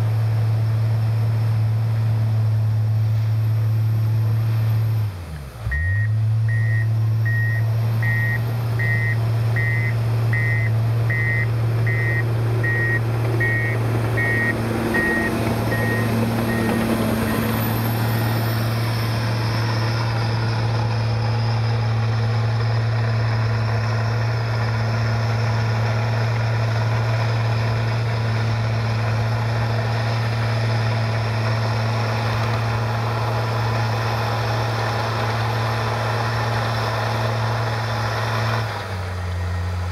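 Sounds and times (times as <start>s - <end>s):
bulldozer diesel engine running: 0.0s - 39.9s
reverse alarm beeping: 5.7s - 17.5s.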